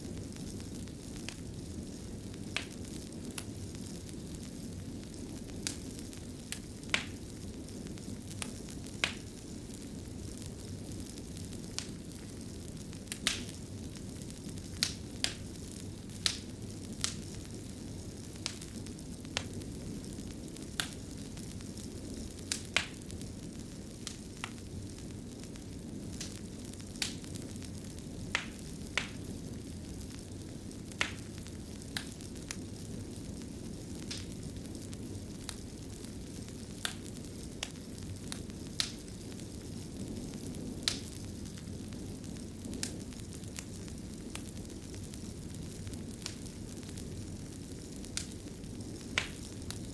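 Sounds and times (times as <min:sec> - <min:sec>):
fire crackling: 0:00.0 - 0:49.9
fire pops: 0:00.0 - 0:49.9.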